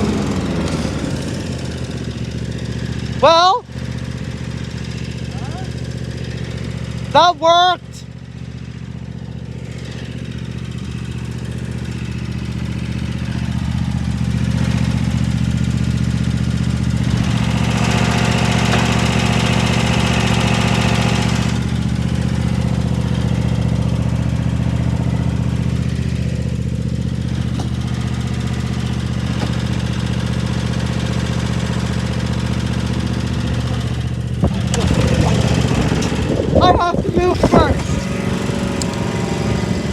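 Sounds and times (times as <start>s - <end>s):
lawn mower engine mowing: 0.0s - 7.4s, 8.2s - 39.9s.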